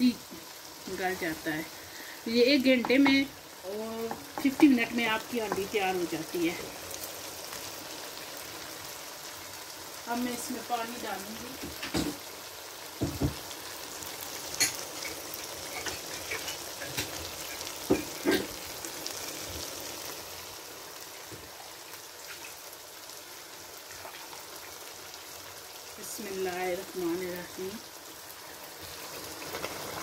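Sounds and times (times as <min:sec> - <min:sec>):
curry sizzling in oil: 0:00.0 - 0:30.0.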